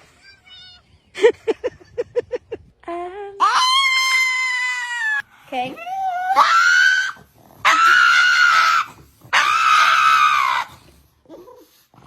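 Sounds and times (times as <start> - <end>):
animal screaming: 6.2 - 10.8.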